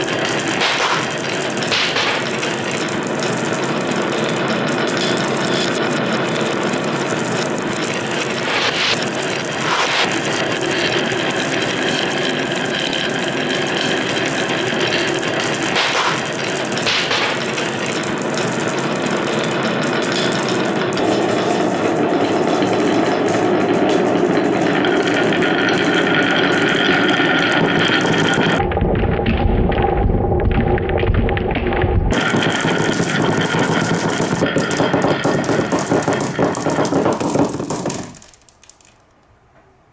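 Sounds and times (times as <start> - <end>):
marbles rolling and clattering on track: 0.0 - 39.3.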